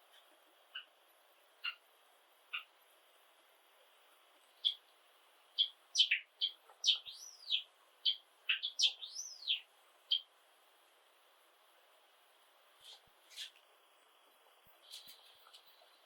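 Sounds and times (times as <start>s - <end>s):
sparrow singing: 1.6s - 1.8s, 4.6s - 4.8s, 5.5s - 10.3s.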